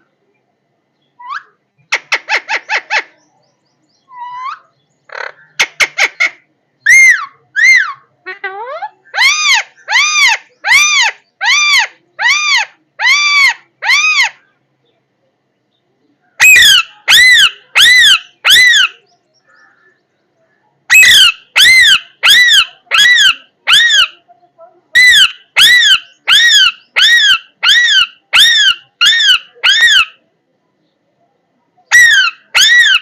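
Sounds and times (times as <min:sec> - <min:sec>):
parrot squawking: 0:04.1 - 0:14.4, 0:16.4 - 0:19.0, 0:20.9 - 0:24.2, 0:24.9 - 0:30.2, 0:31.9 - 0:33.0.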